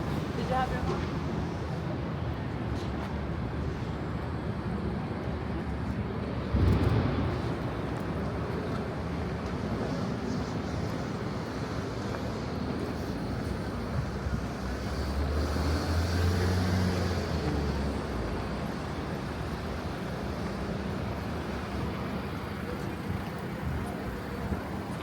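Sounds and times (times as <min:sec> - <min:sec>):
city traffic: 0:00.0 - 0:25.0
passing vehicle engine hum: 0:13.1 - 0:22.5.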